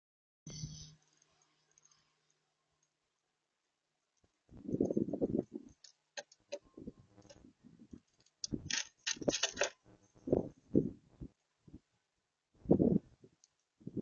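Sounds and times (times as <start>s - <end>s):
birds pecking at seed feeder: 4.1s - 9.8s.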